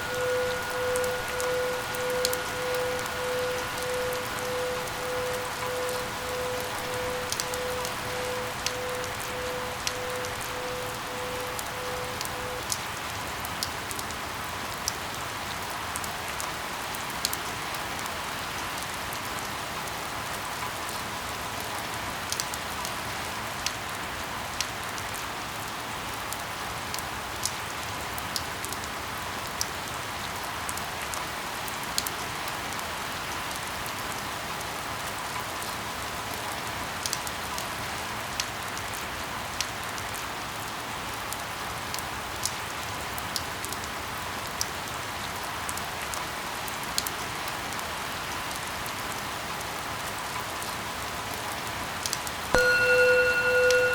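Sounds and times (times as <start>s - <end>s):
faint steady tone: 0.0s - 12.8s, 52.6s - 53.9s
steady rain falling: 0.0s - 53.9s.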